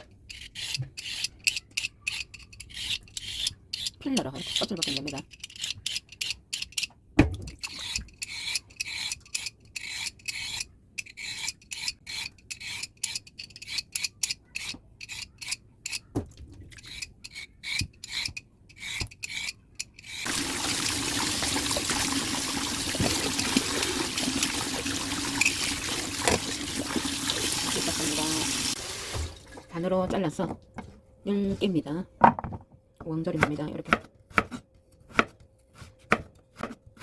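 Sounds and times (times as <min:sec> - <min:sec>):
tap running water: 0:20.2 - 0:29.8.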